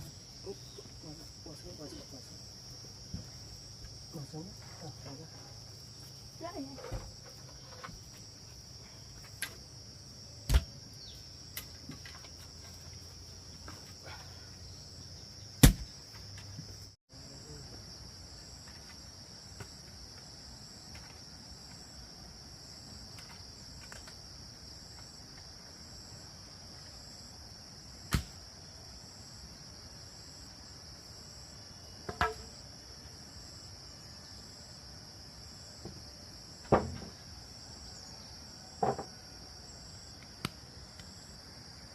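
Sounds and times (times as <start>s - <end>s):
insects chirring: 0.0s - 41.9s
sharp knocks: 15.6s - 15.9s.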